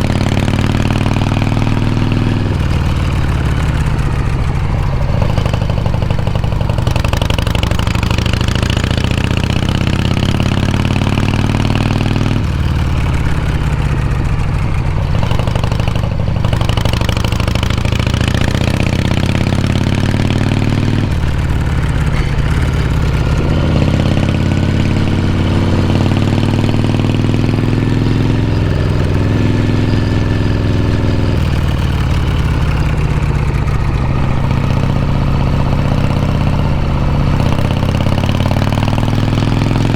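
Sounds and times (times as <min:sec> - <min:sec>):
motorcycle accelerating: 0:00.0 - 0:39.9.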